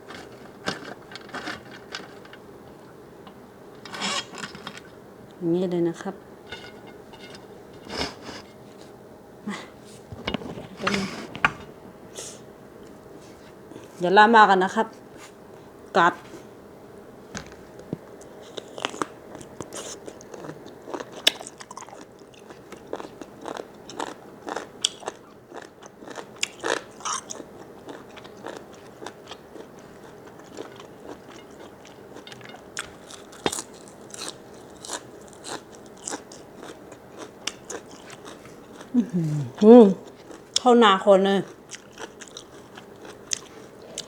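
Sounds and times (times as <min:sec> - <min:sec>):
person chewing with mouth clicks: 0:18.4 - 0:40.7, 0:41.5 - 0:44.0.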